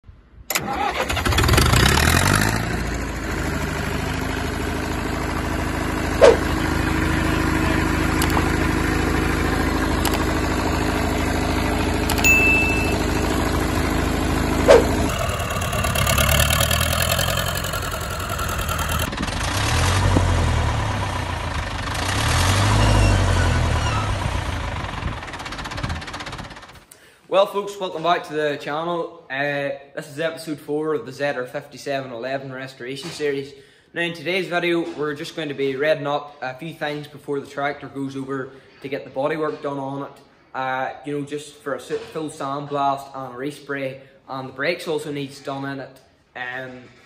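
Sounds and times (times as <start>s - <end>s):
tractor diesel engine idling: 2.2s - 26.8s
sharp clicks: 8.2s - 8.5s, 10.0s - 10.3s, 12.1s - 12.3s.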